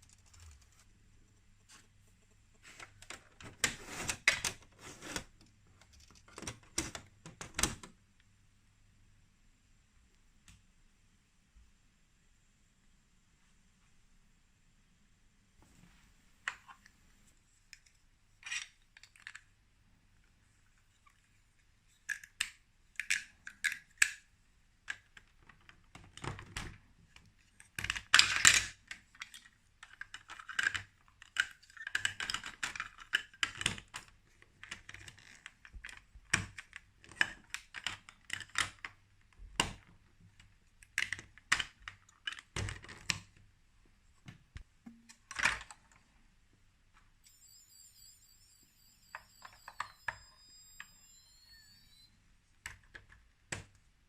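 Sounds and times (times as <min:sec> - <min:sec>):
plastic toy pieces clicking: 0:22.1 - 0:24.2, 0:27.8 - 0:34.0.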